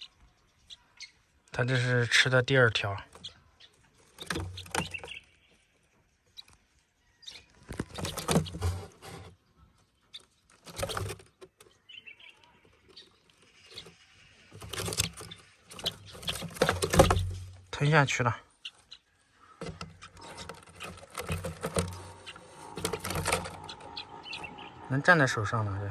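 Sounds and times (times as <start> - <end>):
rustling and scraping: 3.8 - 5.3, 7.4 - 11.8, 12.7 - 17.8, 19.4 - 24.9.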